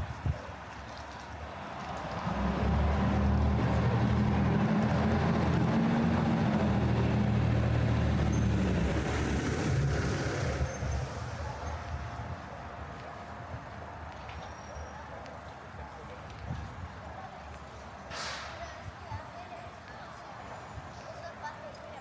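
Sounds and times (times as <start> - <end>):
large vehicle engine humming: 1.7 - 14.0.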